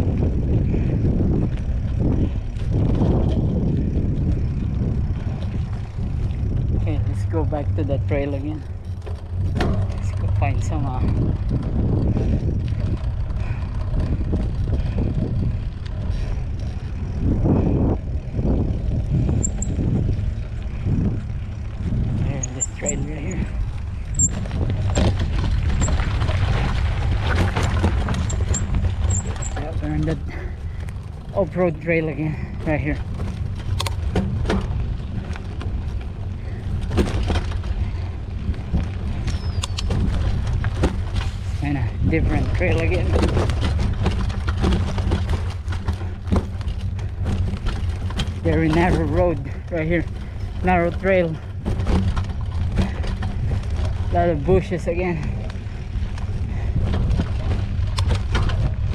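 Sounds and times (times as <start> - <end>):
bike tyres rolling on dirt: 0.0 - 58.9
wind on microphone: 0.0 - 58.9.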